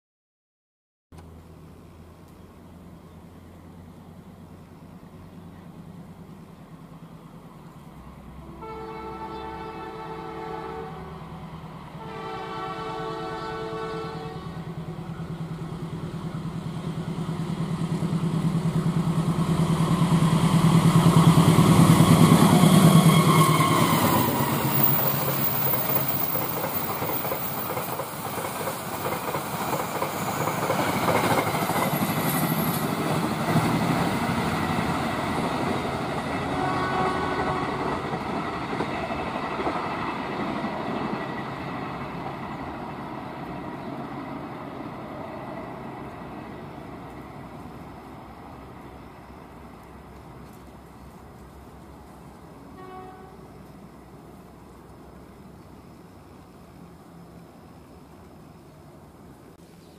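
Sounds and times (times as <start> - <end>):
locomotive engine drone: 1.2 - 59.5
train wheels clattering: 19.7 - 36.5.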